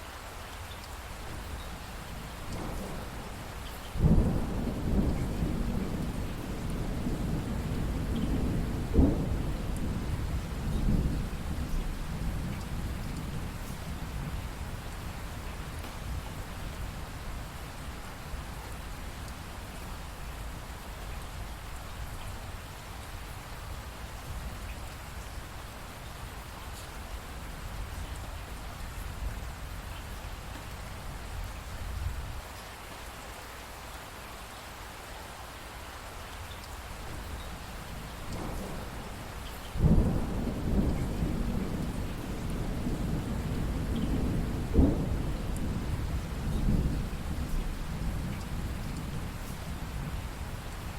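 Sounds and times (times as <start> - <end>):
steady rain hiss: 0.0 - 50.9
thunder rumbling: 2.0 - 17.6, 37.1 - 50.9
sharp thunder crack: 39.8 - 49.3.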